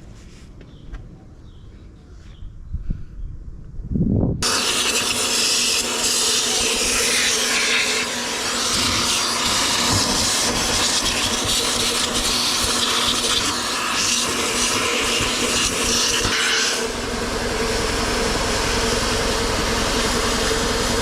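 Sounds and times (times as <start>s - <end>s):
vacuum cleaner running: 4.4s - 21.0s.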